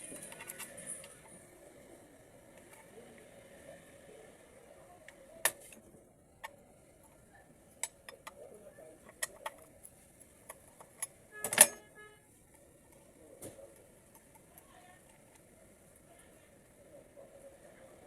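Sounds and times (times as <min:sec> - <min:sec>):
metal parts clicking and tapping: 0:07.8 - 0:08.4, 0:10.4 - 0:11.9.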